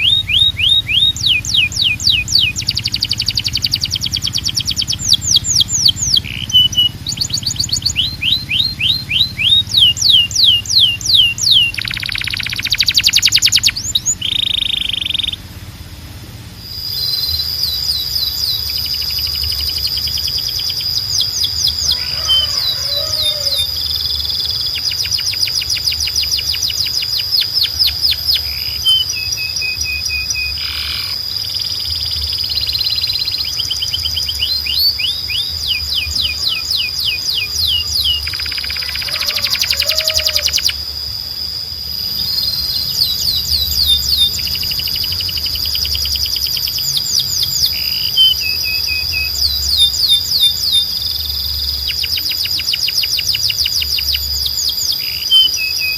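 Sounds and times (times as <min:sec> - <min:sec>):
low hum: 0:00.0 - 0:38.8
canaries singing trills: 0:00.0 - 0:55.9
steady high tone: 0:16.5 - 0:55.9.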